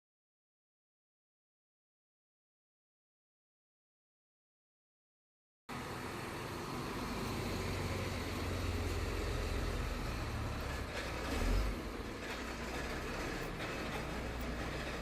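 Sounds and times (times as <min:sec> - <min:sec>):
diesel engine idling: 0:05.7 - 0:15.0.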